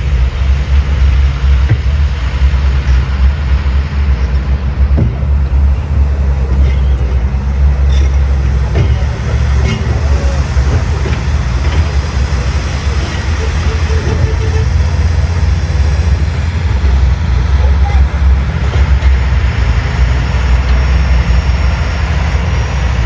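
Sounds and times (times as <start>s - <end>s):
diesel engine rumbling: 0.0s - 23.0s.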